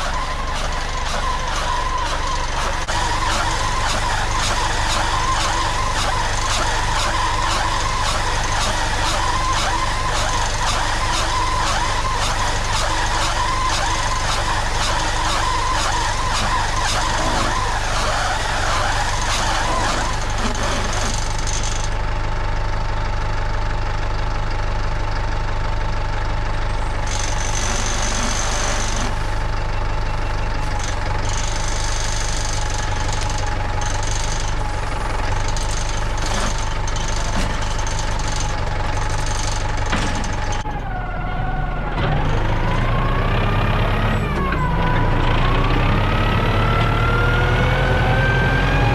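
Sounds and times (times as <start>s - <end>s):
high machinery whine: 0.0s - 22.2s, 26.5s - 48.9s
tractor diesel engine running: 0.0s - 48.9s.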